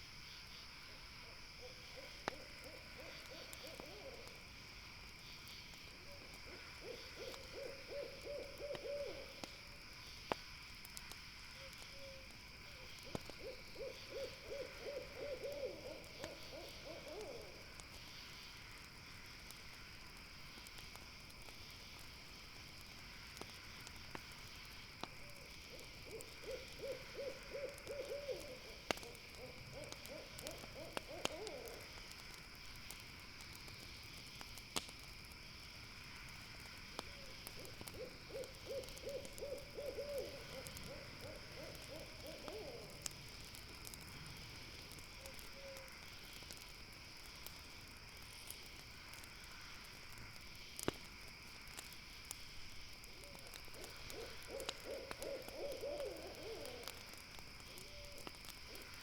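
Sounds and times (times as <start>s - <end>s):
night insects chorus: 0.0s - 59.0s
owl hooting trill: 1.6s - 4.3s, 6.5s - 9.4s, 11.9s - 12.2s, 13.0s - 17.5s, 25.7s - 31.8s, 37.1s - 43.0s, 45.6s - 45.9s, 53.2s - 56.9s
campfire pops: 8.6s - 13.8s, 15.9s - 27.1s, 27.7s - 59.0s.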